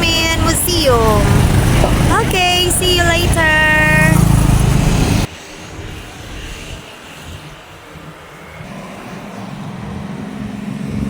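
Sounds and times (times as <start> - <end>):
vehicle engine humming: 0.0 - 5.3
road noise: 0.0 - 11.0.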